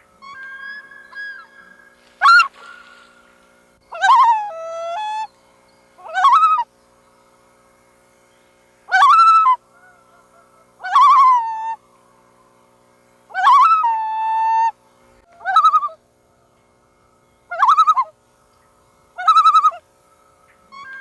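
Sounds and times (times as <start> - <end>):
loon calling: 0.0 - 5.3, 6.0 - 6.7, 8.9 - 11.8, 13.3 - 16.5, 17.4 - 18.2, 19.1 - 19.9, 20.5 - 21.0.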